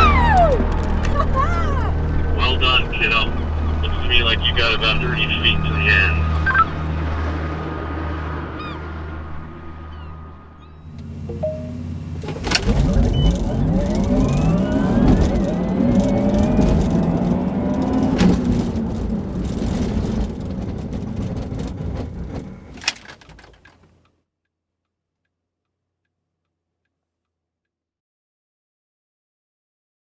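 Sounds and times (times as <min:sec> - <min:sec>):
car accelerating: 0:00.0 - 0:22.8.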